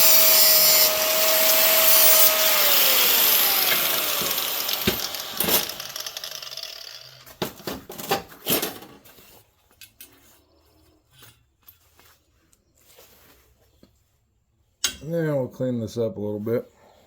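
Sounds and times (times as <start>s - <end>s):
power cutting tool spinning down: 0.0s - 7.4s
steel clinking and clanking: 3.7s - 6.6s.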